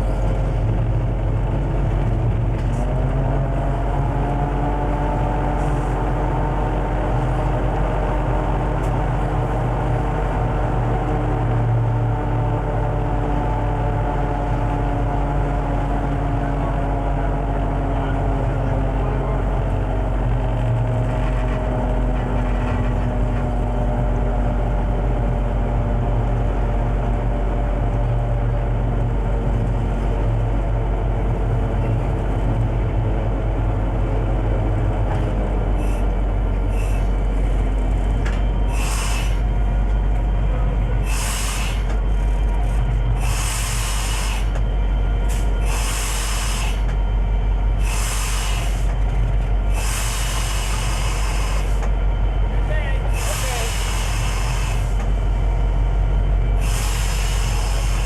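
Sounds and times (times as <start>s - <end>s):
diesel locomotive engine drone: 0.0s - 58.0s
short sharp hisses: 38.7s - 39.4s, 41.0s - 41.9s, 47.8s - 48.9s, 49.7s - 51.8s, 53.1s - 54.9s.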